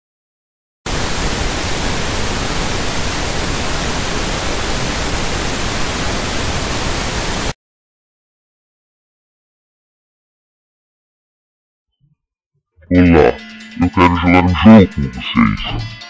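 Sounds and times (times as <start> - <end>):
static hiss: 0.9 - 7.6.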